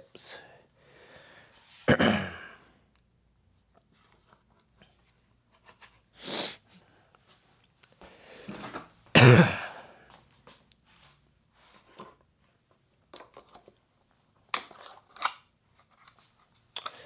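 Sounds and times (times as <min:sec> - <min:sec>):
person coughing: 0:01.9 - 0:02.7, 0:09.1 - 0:10.0
small parts clicking and rattling: 0:14.4 - 0:17.0.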